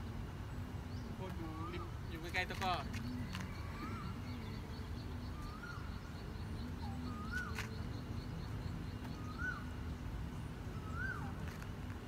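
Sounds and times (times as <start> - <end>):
steady low rumble: 0.0 - 12.0
bird whistling: 1.0 - 9.8, 10.7 - 11.6.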